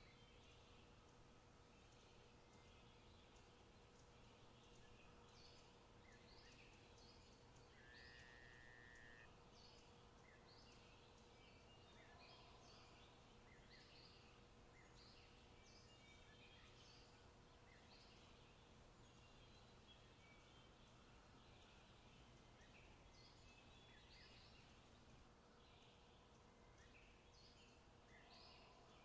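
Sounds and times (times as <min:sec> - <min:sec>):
birds chirping: 0:00.1 - 0:29.0
buzzy bird call: 0:07.8 - 0:09.3.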